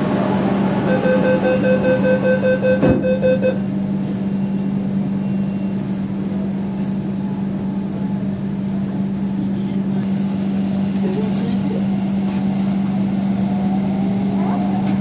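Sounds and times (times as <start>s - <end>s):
train hum and rumble: 0.0s - 15.0s.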